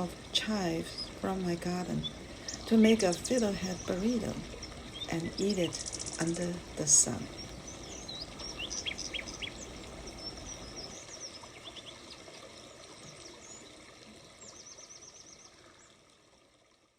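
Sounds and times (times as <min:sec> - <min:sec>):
outdoor hiss: 0:00.0 - 0:15.9
songbirds chirping: 0:00.0 - 0:16.1
bird trill: 0:02.0 - 0:11.9.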